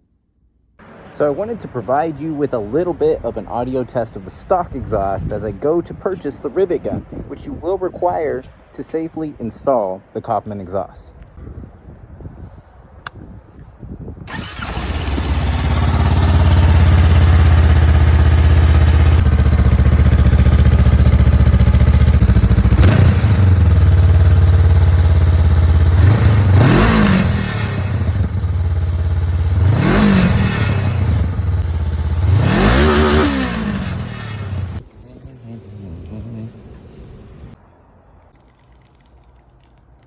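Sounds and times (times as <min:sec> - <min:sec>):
motorcycle engine revving: 0:14.3 - 0:37.6.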